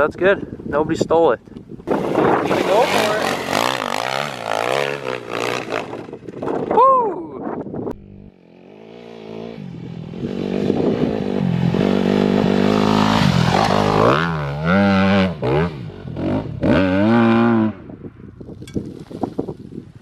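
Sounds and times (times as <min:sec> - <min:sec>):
dirt bike engine revving: 0:01.9 - 0:06.6, 0:08.0 - 0:17.9.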